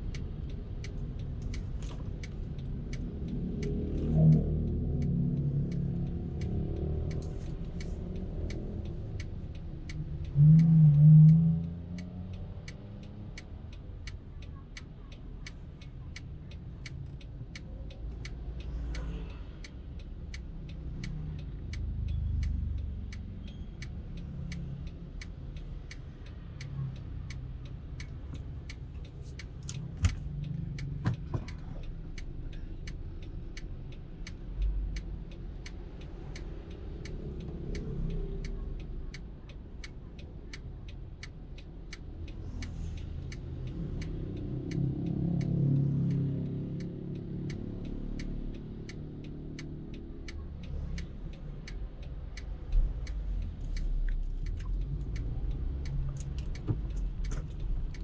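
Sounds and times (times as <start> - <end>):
car engine and road rumble: 0.0 - 58.0
turn signal ticking: 0.0 - 58.0.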